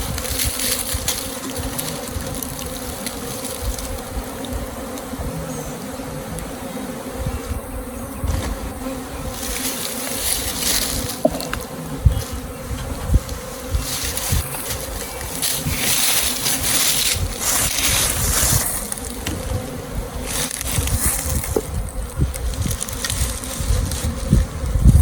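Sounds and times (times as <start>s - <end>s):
bee swarm buzzing: 0.0s - 25.0s
dull knocks: 11.2s - 11.6s.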